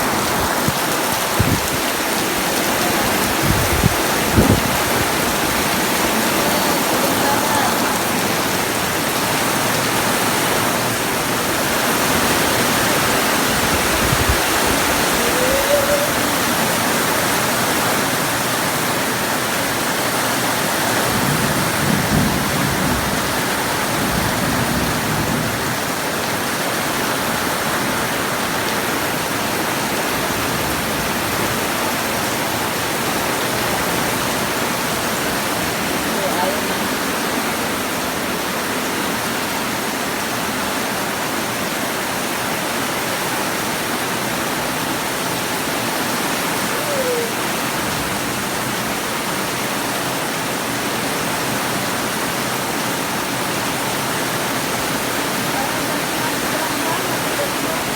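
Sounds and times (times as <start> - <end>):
heavy rain pouring: 0.0 - 57.9
low rumble of thunder: 0.1 - 6.1, 21.0 - 25.8.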